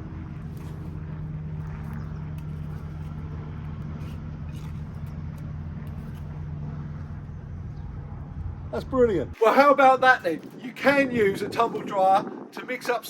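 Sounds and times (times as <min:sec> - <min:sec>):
motor humming: 0:00.0 - 0:09.4
faint short scrapes: 0:00.4 - 0:05.2.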